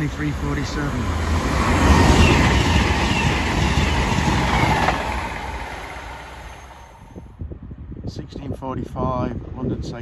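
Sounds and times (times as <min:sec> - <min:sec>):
diesel train passing: 0:00.0 - 0:07.4.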